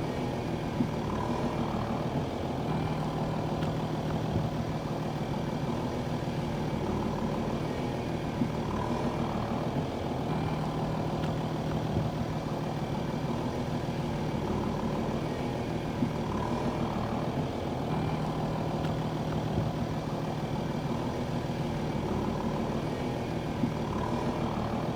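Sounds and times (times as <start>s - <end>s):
heavy vehicle engine idling: 0.0s - 24.9s.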